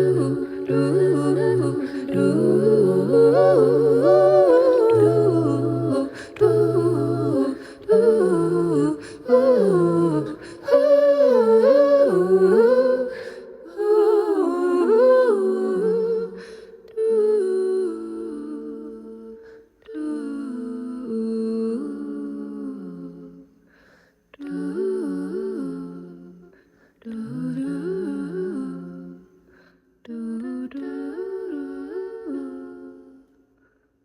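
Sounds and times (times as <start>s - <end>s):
voices humming in harmony: 0.0s - 23.4s.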